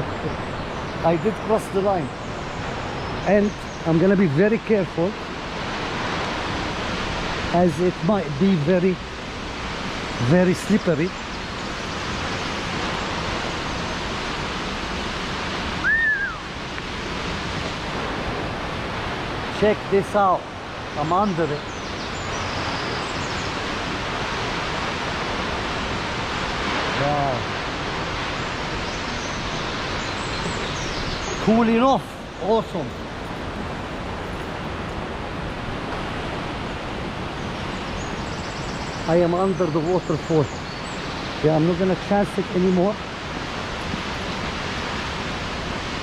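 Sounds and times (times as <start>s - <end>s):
waterfall rushing: 0.0s - 46.0s
whistled note: 15.8s - 16.5s.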